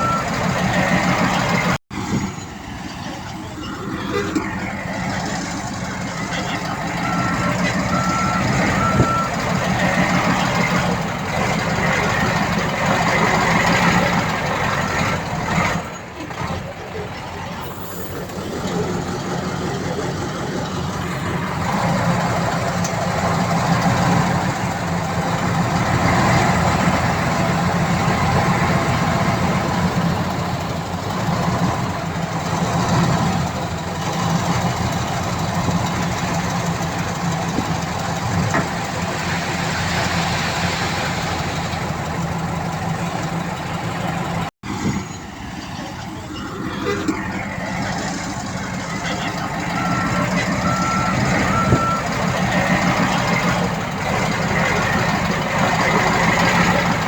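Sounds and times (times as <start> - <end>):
heavy machinery diesel engine: 0.0 - 57.0.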